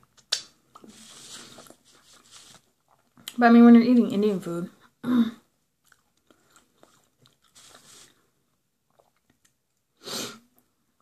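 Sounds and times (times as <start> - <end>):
person chewing food: 0.0 - 3.4, 5.8 - 9.9
wet mouth clicks: 0.1 - 0.9.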